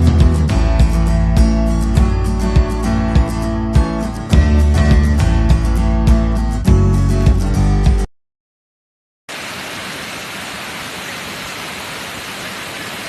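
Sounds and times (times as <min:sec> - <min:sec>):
guitar music: 0:00.0 - 0:08.1
waterfall rushing: 0:09.3 - 0:13.0.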